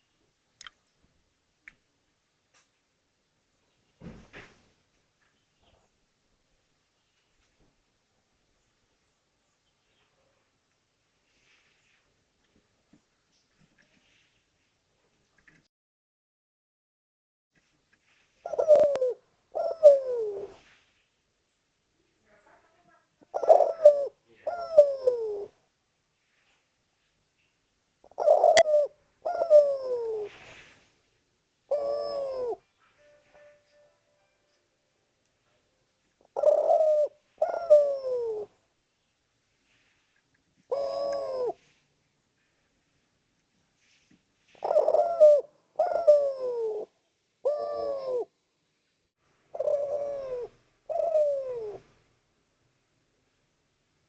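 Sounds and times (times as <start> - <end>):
dove cooing: 18.4 - 20.6, 23.2 - 25.6, 28.0 - 30.7, 31.7 - 33.6, 36.2 - 38.6, 40.7 - 41.7, 44.6 - 48.4, 49.5 - 51.9.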